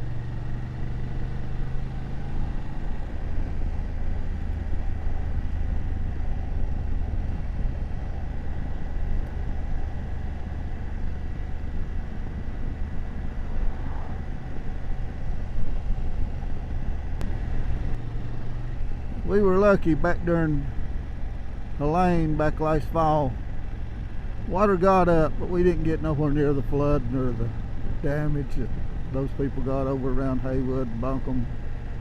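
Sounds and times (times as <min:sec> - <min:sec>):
motorcycle engine running: 0:00.0 - 0:32.0
road noise: 0:00.0 - 0:32.0
wind noise: 0:11.1 - 0:18.0.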